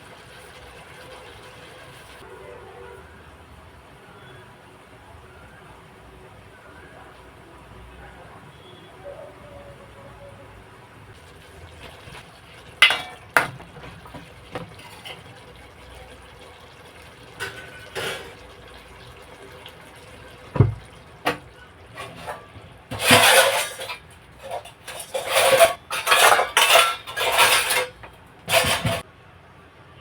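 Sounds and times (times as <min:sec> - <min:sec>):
kitchen utensils clinking: 0:11.2 - 0:29.0
dull thump: 0:20.6 - 0:20.8.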